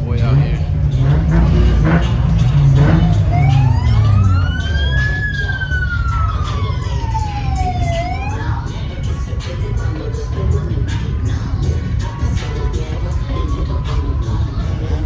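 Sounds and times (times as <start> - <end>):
steady low rumble: 0.6 - 7.0
police siren wailing: 0.9 - 9.4, 12.2 - 15.0.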